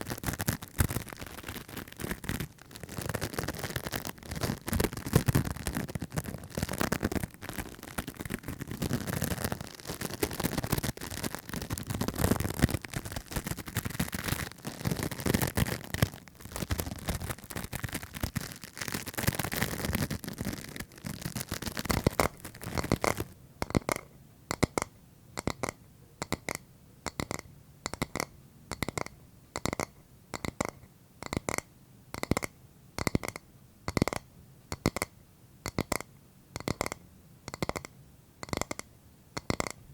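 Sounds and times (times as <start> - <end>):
scratching and scraping on object: 0.0 - 24.0.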